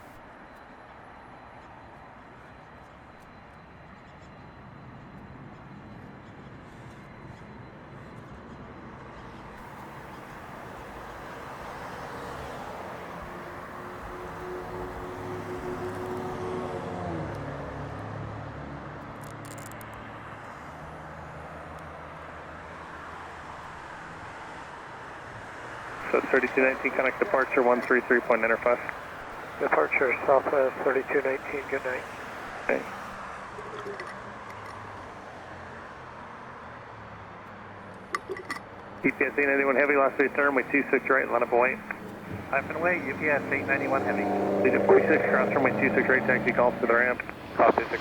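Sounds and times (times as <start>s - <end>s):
distant jet engine rumble: 9.6s - 16.4s, 26.0s - 33.2s, 39.0s - 48.0s
crackle of clicks: 19.1s - 20.0s.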